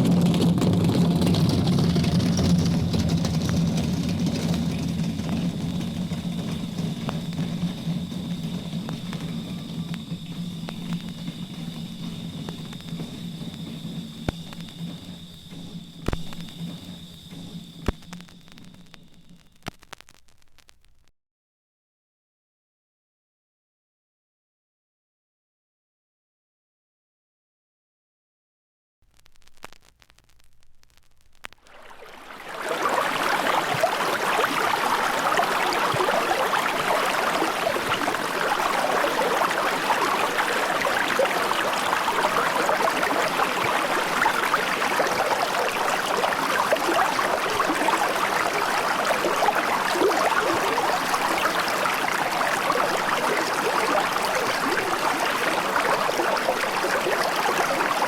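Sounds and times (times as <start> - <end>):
running water: 0.0 - 19.3, 31.6 - 58.0
faint clicks: 16.0 - 21.1, 29.1 - 32.5.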